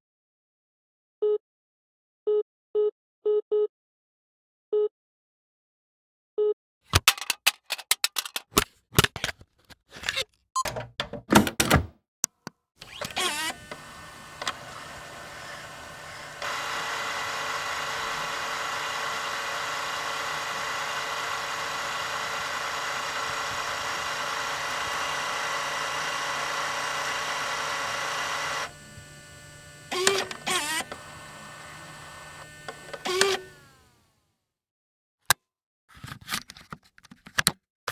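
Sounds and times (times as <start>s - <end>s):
mechanical clunks: 10.6s - 11.9s, 12.8s - 18.4s, 29.9s - 33.6s
electric motor hum: 12.8s - 34.1s.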